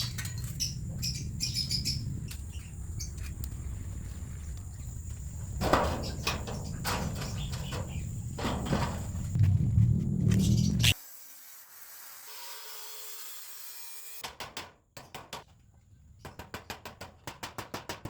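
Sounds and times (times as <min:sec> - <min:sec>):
steady low rumble: 0:06.4 - 0:11.0.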